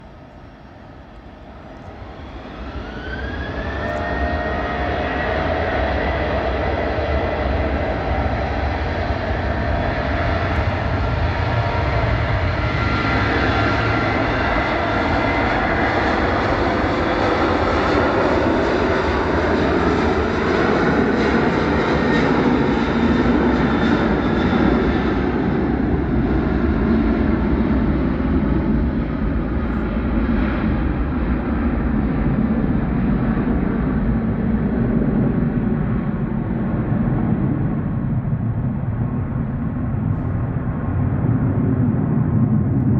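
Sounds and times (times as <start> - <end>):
jet engines roaring: 0.0 - 42.9.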